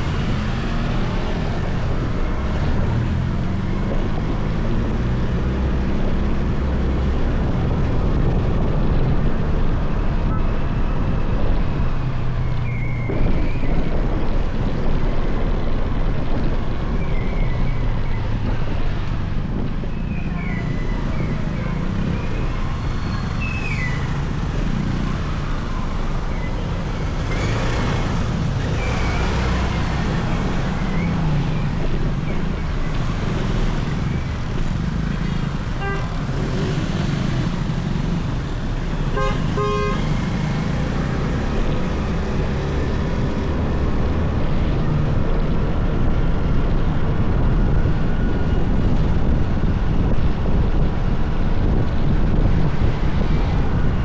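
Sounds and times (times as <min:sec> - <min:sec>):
motorcycle engine rumbling: 0:00.0 - 0:54.0
vehicle horn tooting: 0:35.8 - 0:36.5, 0:39.1 - 0:40.2.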